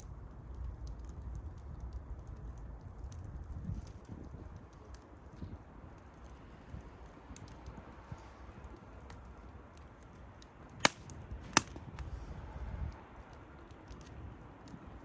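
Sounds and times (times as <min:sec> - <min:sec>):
wood bonfire crackling: 0:00.0 - 0:15.0
loud sharp pops: 0:10.8 - 0:12.0.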